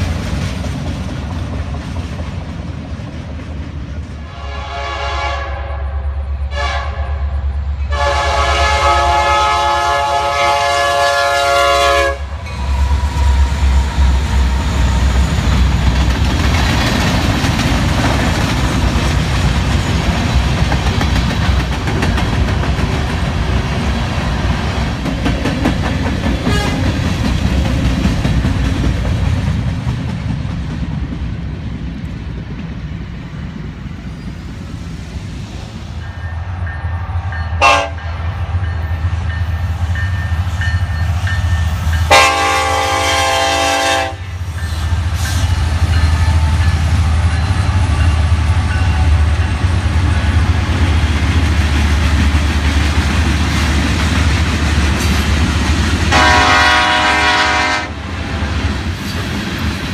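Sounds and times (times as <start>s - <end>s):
train wheels clickety-clack: 0.0s - 4.4s, 12.4s - 59.9s
train rumble: 0.0s - 59.9s
locomotive horn blasts: 4.2s - 15.2s, 26.5s - 26.8s, 37.6s - 38.1s, 42.1s - 44.4s, 56.1s - 58.0s.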